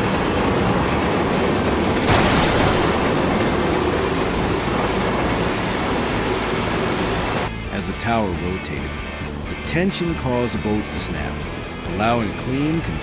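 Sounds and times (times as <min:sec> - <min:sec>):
harsh rushing noise: 0:00.0 - 0:07.5
steel tower toppling rumble: 0:00.0 - 0:07.5.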